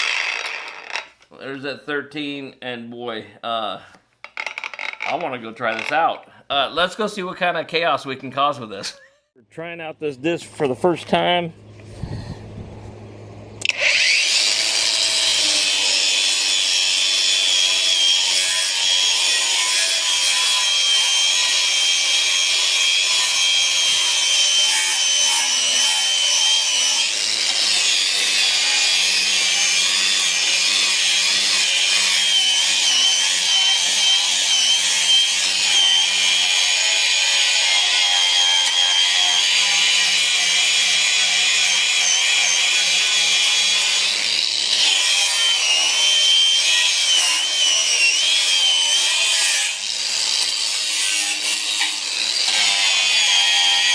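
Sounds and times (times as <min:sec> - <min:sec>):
angle grinder whining: 0:00.0 - 0:01.3, 0:04.2 - 0:06.0, 0:11.7 - 0:53.9.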